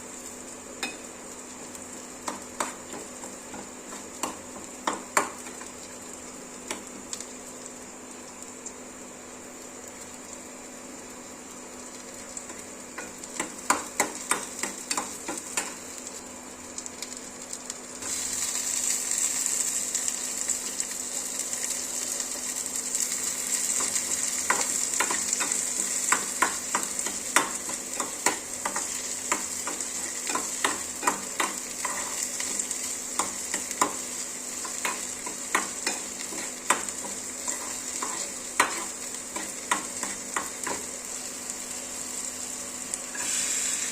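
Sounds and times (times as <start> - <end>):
fried rice sizzling in pan: 0.0 - 43.9.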